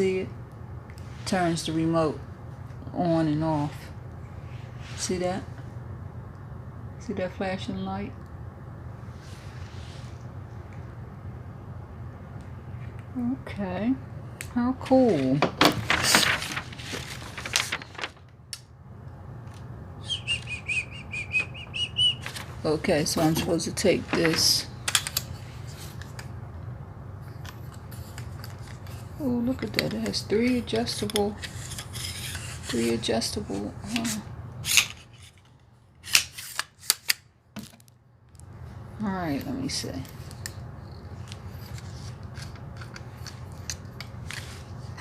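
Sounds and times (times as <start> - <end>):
tripod rubbing: 31.1 - 33.0.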